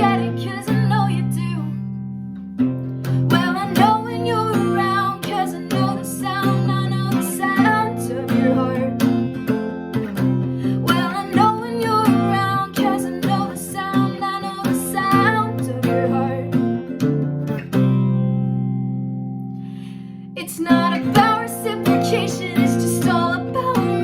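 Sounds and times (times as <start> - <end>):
strummed acoustic guitar: 0.0 - 24.0
person singing: 3.2 - 9.0, 10.7 - 16.5, 20.4 - 24.0.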